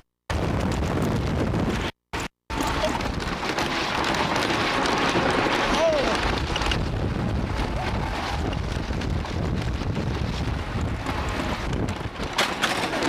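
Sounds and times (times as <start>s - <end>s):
wind buffeting microphone: 0.3s - 1.9s, 2.5s - 13.0s
roller coaster rumbling on track: 2.5s - 13.0s.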